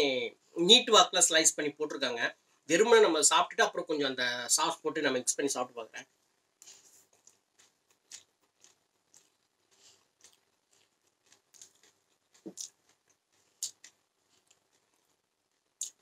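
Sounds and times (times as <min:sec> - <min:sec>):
wet mouth smacks and clicks: 0:06.6 - 0:14.6, 0:15.8 - 0:16.0
person chewing noodles: 0:06.6 - 0:16.0.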